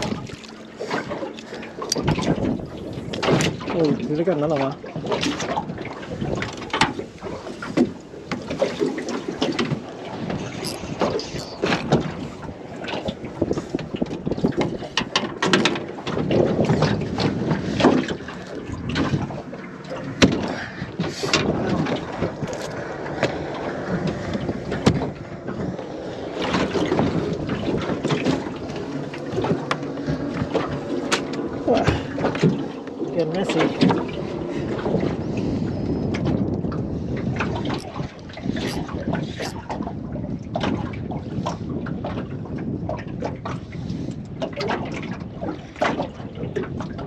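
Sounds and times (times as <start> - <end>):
knocks and clatter in metal boat: 0.0 - 47.0
water and movement: 0.0 - 47.0.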